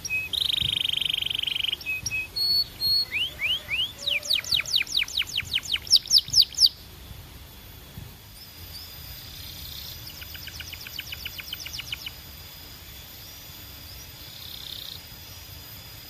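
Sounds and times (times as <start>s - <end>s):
canary trilling: 0.0s - 6.8s, 9.3s - 12.2s
high-pitched hum: 0.0s - 16.0s.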